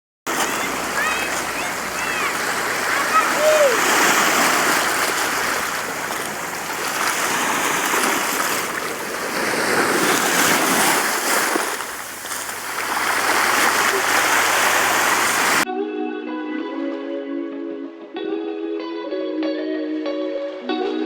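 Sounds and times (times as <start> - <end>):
sea waves washing ashore: 0.3 - 15.7.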